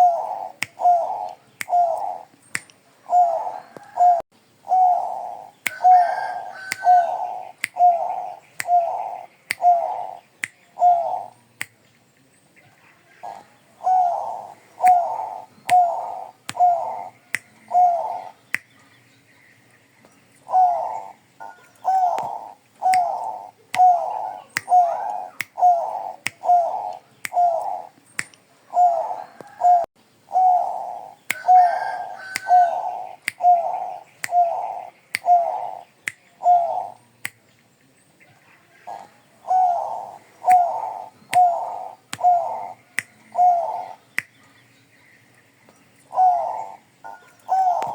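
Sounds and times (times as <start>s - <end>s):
dove cooing: 0.0s - 2.3s, 3.0s - 10.2s, 10.8s - 11.4s, 13.1s - 18.4s, 20.4s - 28.0s, 28.7s - 37.0s, 38.8s - 44.0s, 46.1s - 47.9s.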